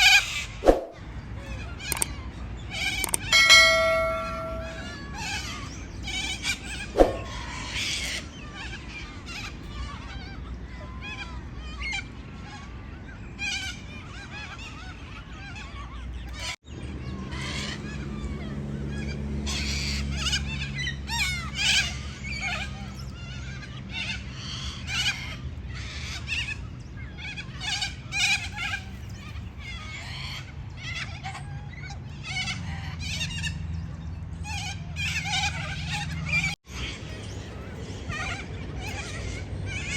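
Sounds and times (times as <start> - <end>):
low steady hum: 3.1 - 5.1.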